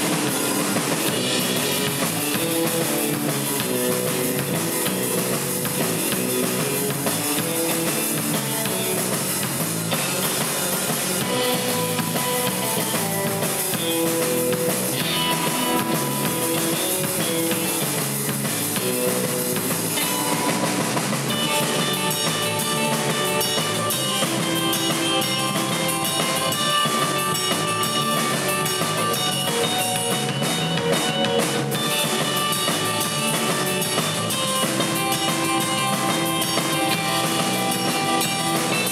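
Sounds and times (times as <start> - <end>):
bass guitar: 0.0 - 38.9
drum kit: 0.0 - 38.9
electric guitar lead: 0.0 - 38.9.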